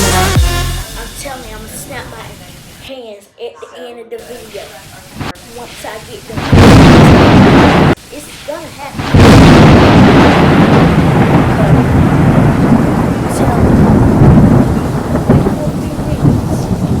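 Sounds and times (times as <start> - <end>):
rain: 4.2 - 17.0
loud rumbling thunder: 6.4 - 8.0, 8.9 - 17.0.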